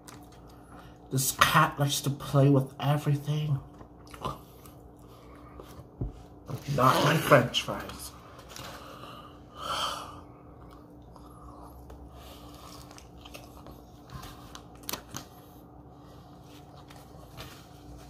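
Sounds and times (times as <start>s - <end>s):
person chewing a hamburger: 3.7s - 6.4s, 10.4s - 17.4s.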